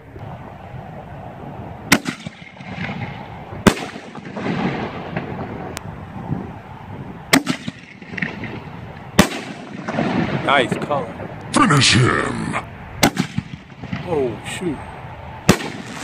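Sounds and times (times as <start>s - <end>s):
firework rumble and crackle: 0.0s - 11.6s, 12.9s - 16.0s
firework crack: 1.8s - 6.0s, 7.3s - 11.6s, 13.0s - 14.2s, 15.4s - 16.0s
firework booms: 1.9s - 5.8s, 7.3s - 11.3s, 13.0s - 14.1s, 15.5s - 16.0s.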